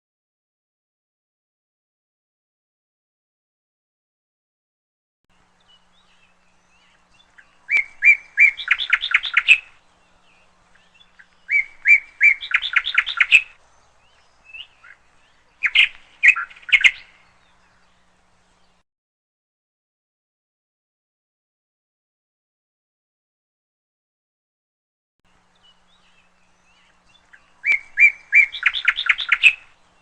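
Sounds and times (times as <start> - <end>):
canary chirping: 7.4 - 9.8, 10.8 - 13.6, 14.5 - 17.1, 27.2 - 29.7.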